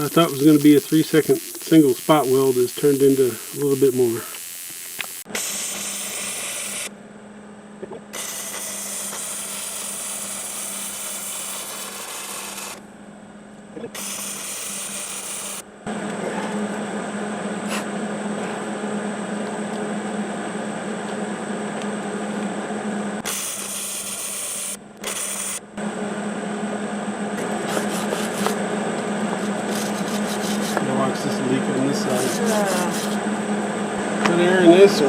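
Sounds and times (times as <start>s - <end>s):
electric grinder on steel: 0.0s - 6.9s, 8.2s - 12.8s, 14.0s - 15.6s, 23.3s - 25.6s.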